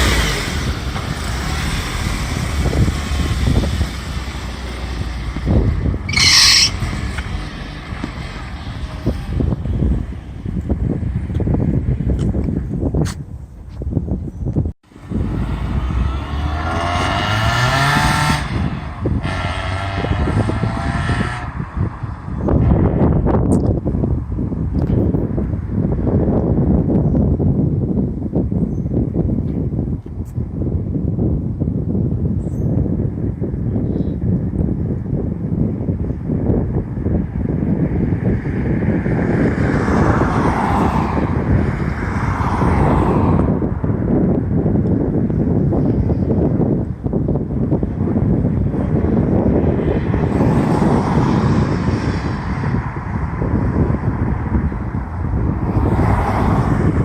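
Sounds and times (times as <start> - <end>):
car engine accelerating: 0.0 - 11.6, 14.9 - 22.0
road and wind noise: 0.0 - 57.0
vehicle passing: 14.9 - 23.1, 48.8 - 57.0.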